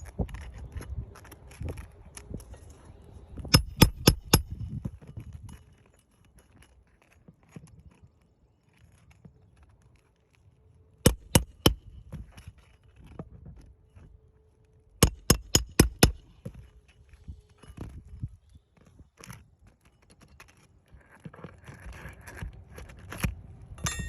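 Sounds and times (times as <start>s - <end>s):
hammer blows on shingle roof: 3.4s - 4.6s, 11.0s - 11.9s, 15.0s - 16.3s
faint scraping and tapping: 4.4s - 11.0s, 11.8s - 14.8s, 16.1s - 23.5s.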